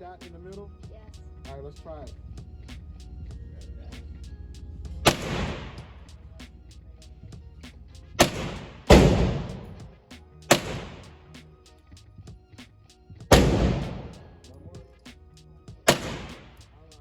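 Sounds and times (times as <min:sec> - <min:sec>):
handgun shots echoing: 0:05.1 - 0:05.9, 0:08.2 - 0:09.8, 0:10.5 - 0:11.2, 0:13.3 - 0:14.3, 0:15.9 - 0:16.6.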